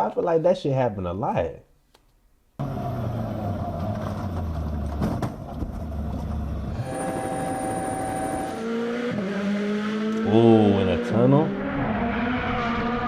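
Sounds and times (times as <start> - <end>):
rally car engine rumbling: 2.6 - 13.0
road noise: 2.6 - 13.0.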